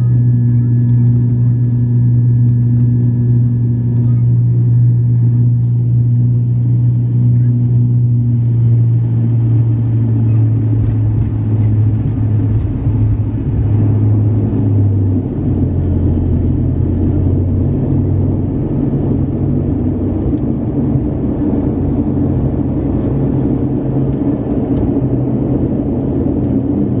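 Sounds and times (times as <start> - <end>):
airliner engine drone in cabin: 0.0 - 27.0.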